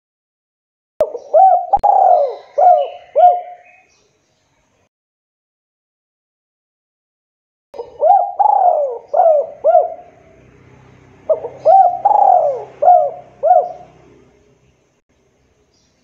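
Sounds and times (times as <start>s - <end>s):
dove cooing: 1.0s - 3.8s, 7.8s - 10.5s, 11.2s - 14.4s.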